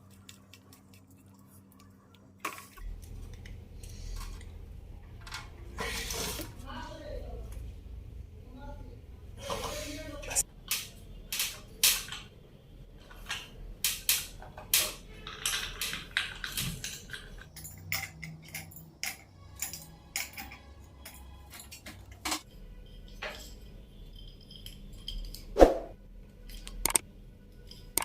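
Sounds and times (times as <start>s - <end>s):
metal on metal clinks and knocks: 14.1s - 25.5s.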